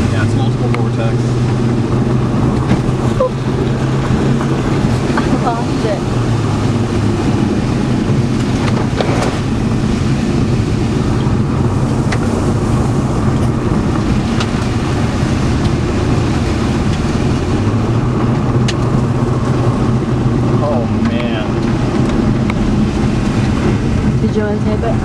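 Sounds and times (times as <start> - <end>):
engine and road hum: 0.0 - 25.0
light clicks inside car: 18.4 - 19.0.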